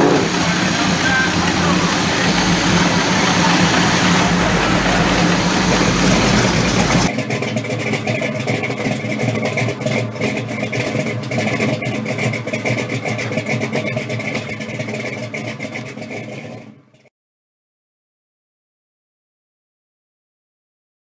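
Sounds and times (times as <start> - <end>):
car engine idling: 0.0 - 16.5.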